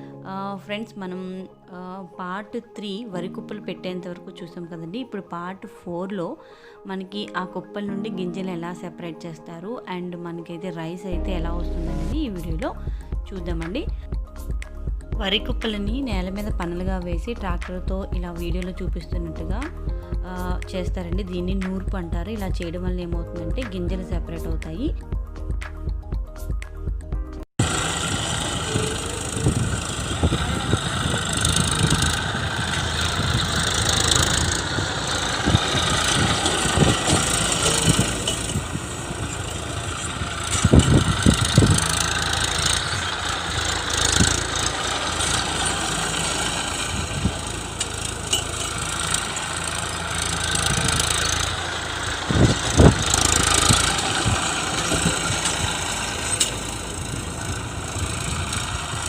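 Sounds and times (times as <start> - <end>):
knocks and clatters: 27.6 - 59.0
tractor engine running: 27.6 - 59.0.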